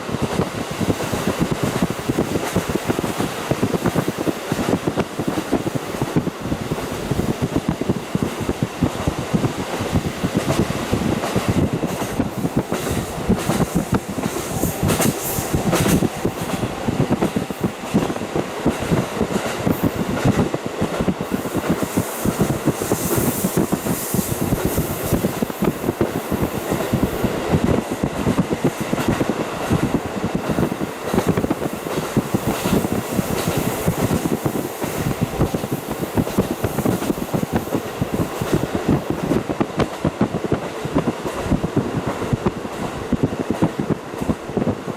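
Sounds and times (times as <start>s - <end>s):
rushing air: 0.0s - 44.9s
train wheels clattering on rails: 0.0s - 44.9s.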